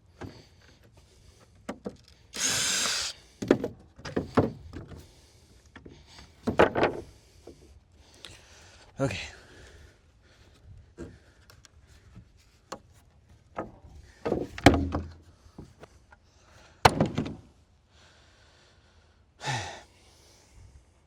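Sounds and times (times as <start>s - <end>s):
wooden knocks of lumber: 3.4s - 5.0s, 6.4s - 7.0s, 13.5s - 15.2s, 16.8s - 17.4s.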